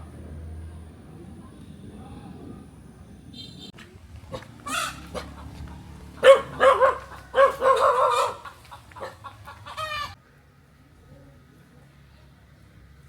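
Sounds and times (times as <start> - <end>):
chickens squawking and clucking: 4.4 - 10.2
dog barking: 6.2 - 9.3.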